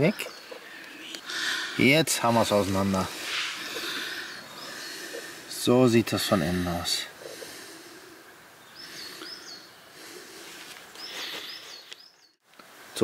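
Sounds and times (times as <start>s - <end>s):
faint outdoor background hiss: 0.0s - 13.0s.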